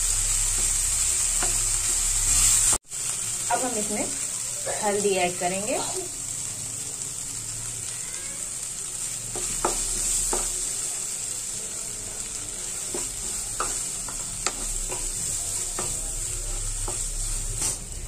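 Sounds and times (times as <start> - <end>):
vegetables sizzling in a pan: 0.0 - 18.0
spatula knocking and scraping pan: 9.3 - 10.7, 12.8 - 16.1.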